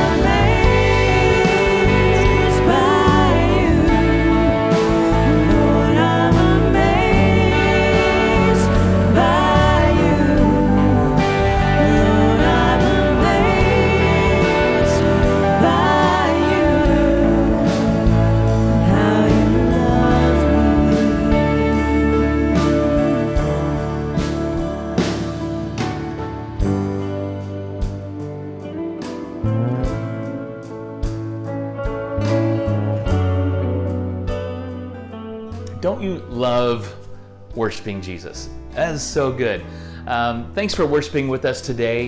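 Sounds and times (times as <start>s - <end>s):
worship band with singing: 0.0s - 35.1s.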